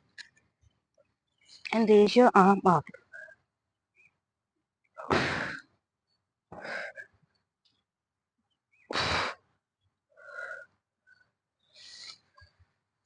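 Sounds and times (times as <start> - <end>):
woman breathing: 10.2 - 12.6.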